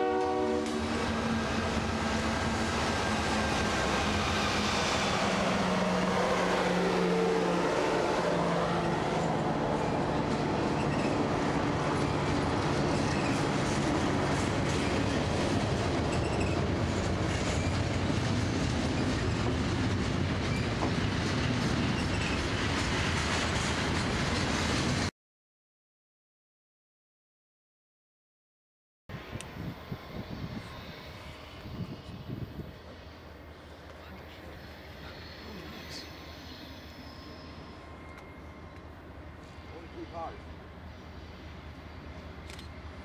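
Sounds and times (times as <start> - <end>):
diesel locomotive engine drone: 0.0 - 25.1, 29.1 - 43.0
freight cars rumbling over rails: 0.0 - 25.1.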